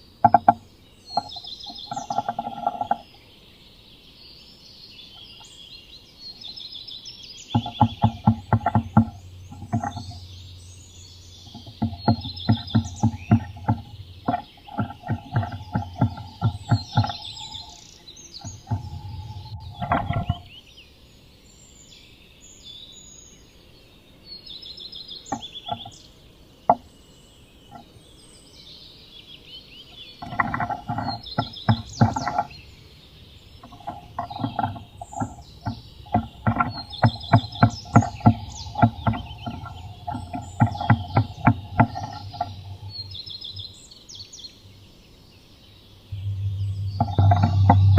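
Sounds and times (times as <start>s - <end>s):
birds singing: 0.0s - 47.9s
bird tapping on wooden box: 0.2s - 3.0s, 7.5s - 10.7s, 11.3s - 17.8s, 18.4s - 20.5s, 25.3s - 26.0s, 30.2s - 32.7s, 33.6s - 43.6s, 46.2s - 47.9s.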